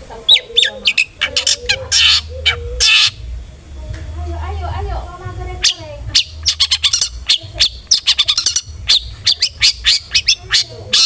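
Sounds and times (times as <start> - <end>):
bird harsh chirps: 0.3 - 3.2, 5.6 - 11.0.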